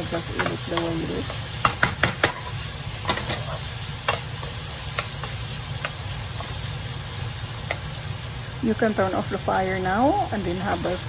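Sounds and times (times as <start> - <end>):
beef sizzling in a frying pan: 0.0 - 11.0
spoon knocking against pan: 1.6 - 2.5.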